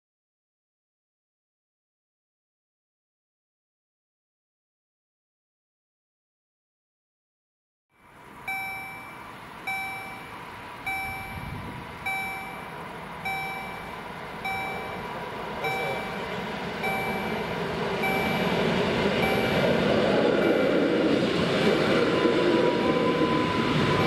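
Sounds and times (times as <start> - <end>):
level crossing bell ringing: 8.0 - 20.8
train rumble: 8.1 - 24.0.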